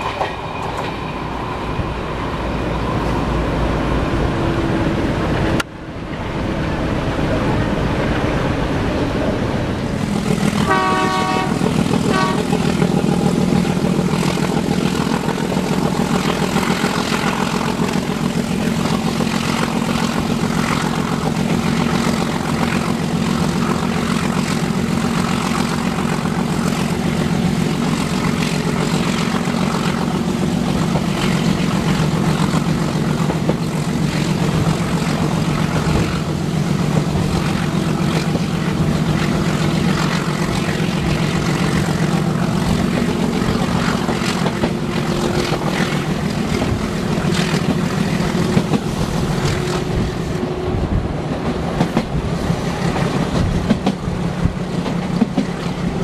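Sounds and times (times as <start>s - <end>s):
diesel train rumbling: 0.0s - 56.0s
locomotive horn blasts: 10.5s - 12.6s.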